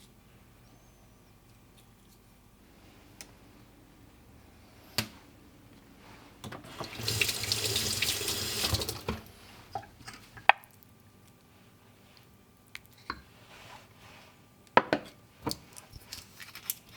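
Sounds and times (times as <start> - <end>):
kitchen tap running: 6.5 - 9.3.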